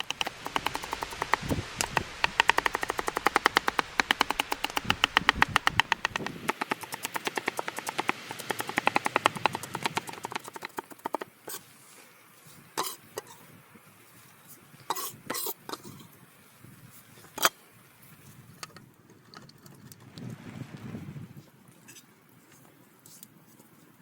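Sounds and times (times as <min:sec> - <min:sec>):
fast run of sharp taps: 0:00.0 - 0:11.3
knocks: 0:00.0 - 0:11.3.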